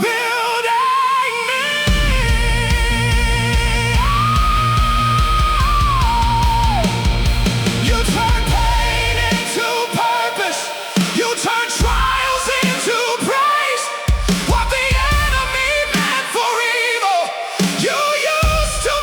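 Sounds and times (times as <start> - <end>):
heavy bass and drums: 1.9 - 9.6.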